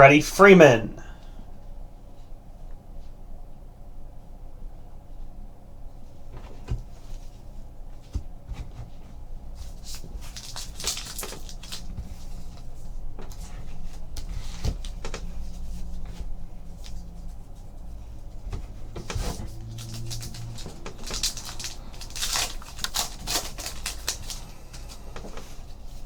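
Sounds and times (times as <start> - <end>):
low room hum: 0.0 - 26.0
card packs rustling: 9.7 - 12.4, 19.0 - 26.0.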